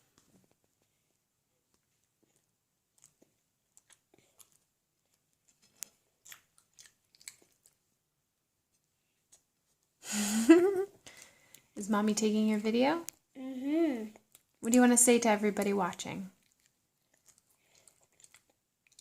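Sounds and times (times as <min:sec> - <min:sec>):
chewing mouth clicks and smacks: 0:01.7 - 0:07.8, 0:16.4 - 0:19.0.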